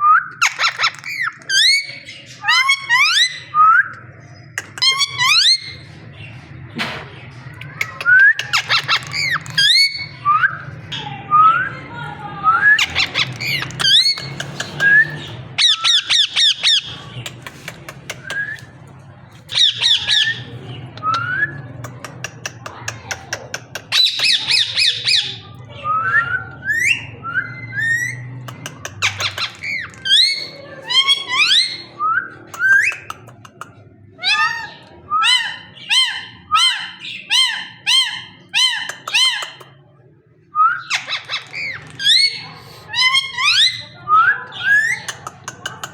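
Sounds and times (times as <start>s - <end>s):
parrot squawking: 0.4s - 3.5s, 4.6s - 5.8s, 7.7s - 10.5s, 12.8s - 17.0s, 19.5s - 20.5s, 26.7s - 31.9s, 34.2s - 39.7s, 40.8s - 44.0s.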